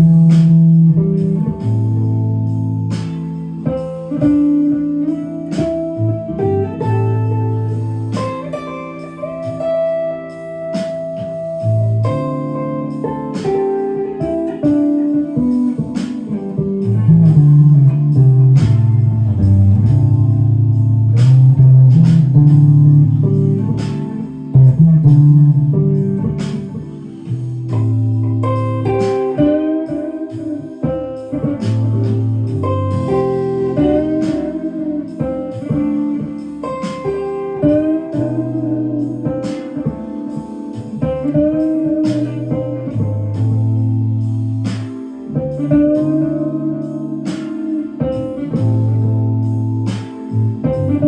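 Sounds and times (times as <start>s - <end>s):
electric guitar blues solo: 0.0s - 51.0s.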